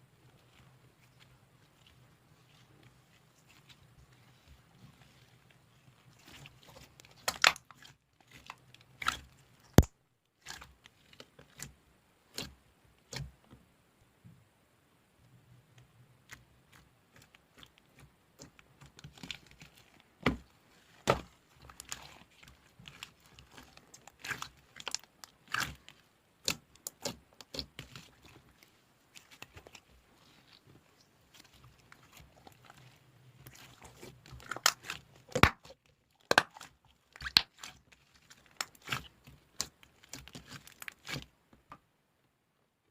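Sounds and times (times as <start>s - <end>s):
slime crackling and popping: 6.2s - 10.6s, 20.9s - 28.4s, 31.3s - 41.2s.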